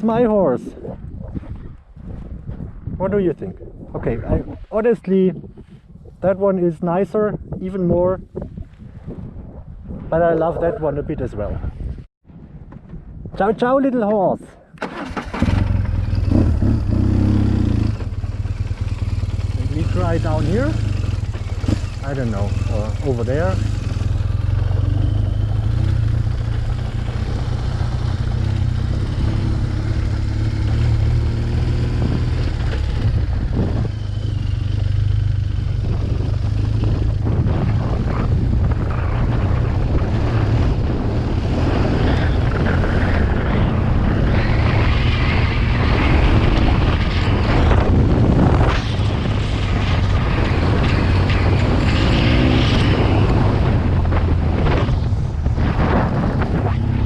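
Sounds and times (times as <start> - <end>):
wind noise on microphone: 0.0 - 57.0
motorcycle engine running: 15.0 - 57.0.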